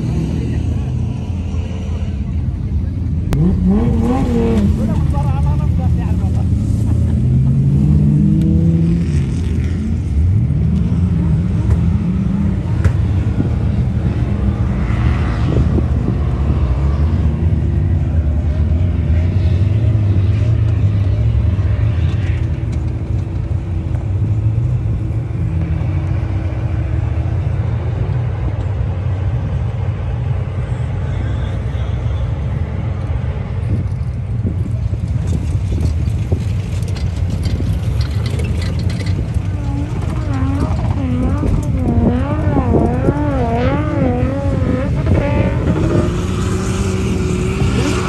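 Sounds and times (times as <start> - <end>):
off-road engines revving: 0.0 - 48.0.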